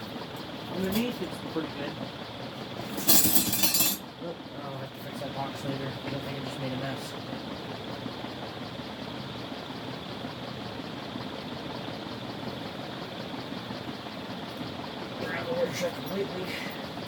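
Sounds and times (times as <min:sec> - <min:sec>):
ceiling fan rushing air: 0:00.0 - 0:17.0.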